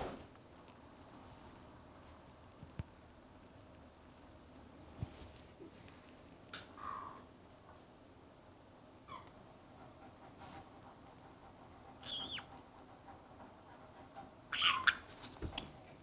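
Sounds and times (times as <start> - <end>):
parrot squawking: 12.0 - 12.5, 14.5 - 15.1.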